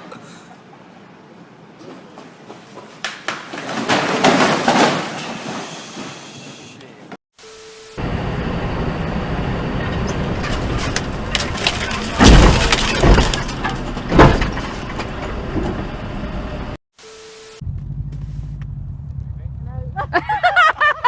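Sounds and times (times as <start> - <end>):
vehicle and road noise: 8.0 - 16.8, 17.6 - 21.0
crash impacts crunching: 10.2 - 15.9
breaking and cracking: 10.8 - 14.8.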